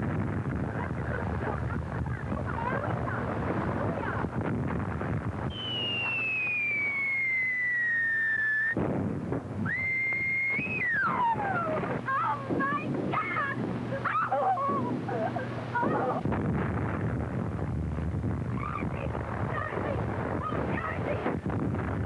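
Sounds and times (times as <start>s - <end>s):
noisy crackling rumble: 0.0s - 22.0s
falling artillery shell whistle: 5.5s - 8.8s, 9.6s - 11.7s.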